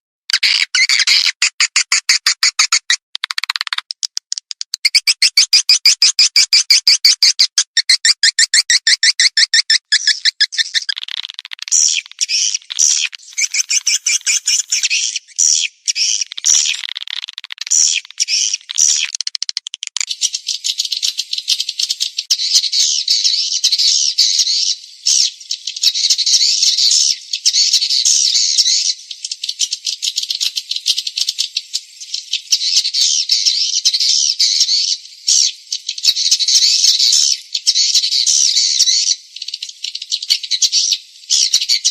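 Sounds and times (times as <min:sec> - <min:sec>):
swiftlet calls: 0:00.3 - 0:19.4.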